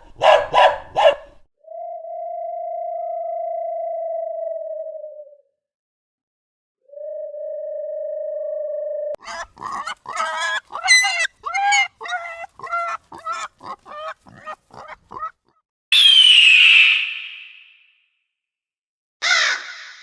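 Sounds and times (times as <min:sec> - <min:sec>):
waterfowl honking quacks: 0:09.2 - 0:15.3
harsh falling caw: 0:19.2 - 0:20.0.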